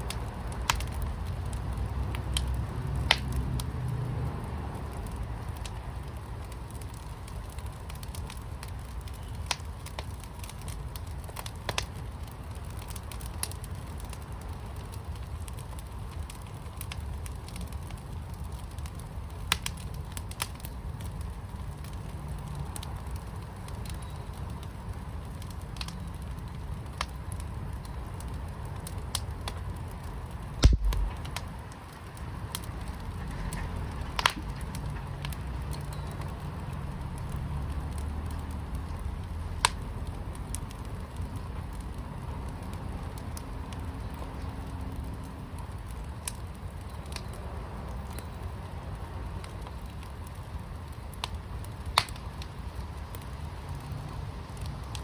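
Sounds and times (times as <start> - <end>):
fire crackling and popping: 0.0 - 55.0
low rumble: 30.6 - 31.4.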